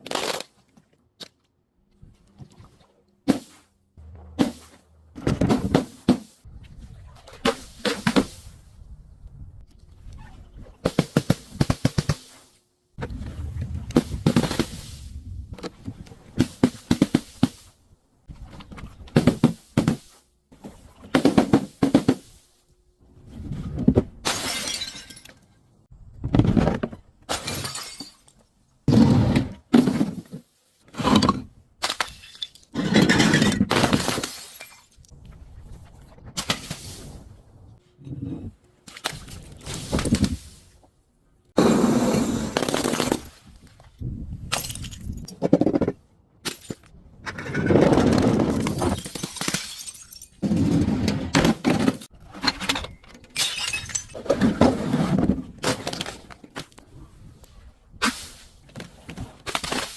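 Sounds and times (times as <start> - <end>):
glass crushing and cracking: 48.6 - 50.4, 52.8 - 54.2.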